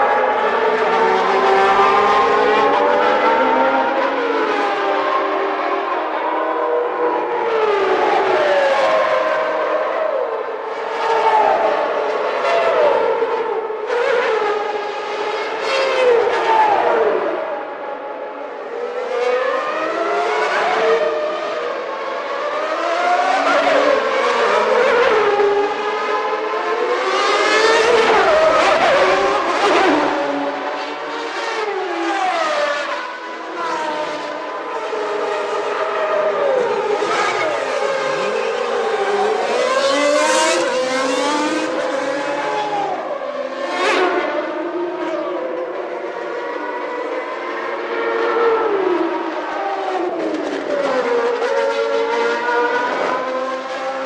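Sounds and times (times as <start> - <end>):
racing car engines passing: 18.6 - 54.0.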